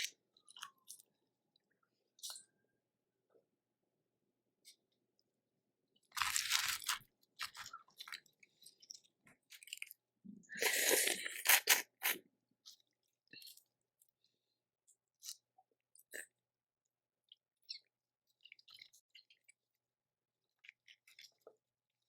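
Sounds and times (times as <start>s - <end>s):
small clicks and wet smacks: 0.0s - 2.7s, 12.6s - 21.8s
loud crunching while eating: 6.1s - 8.3s, 10.6s - 12.2s.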